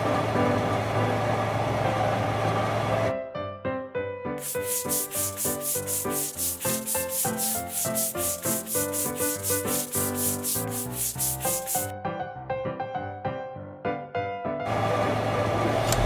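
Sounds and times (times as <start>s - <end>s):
rhythmic scraping: 4.4s - 11.9s.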